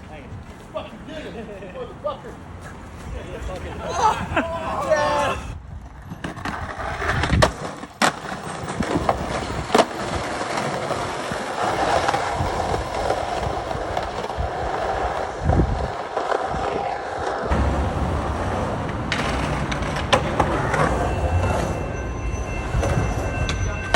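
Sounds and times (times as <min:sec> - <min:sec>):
skateboard wheels rolling on pavement: 0:00.0 - 0:23.9
skateboard clacks: 0:05.8 - 0:23.9.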